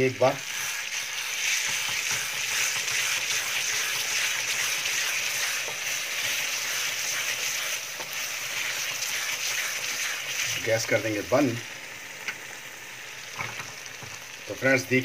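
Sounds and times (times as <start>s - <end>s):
curry sizzling in oil: 0.0s - 15.0s
wooden spatula scraping a pan: 0.4s - 10.7s.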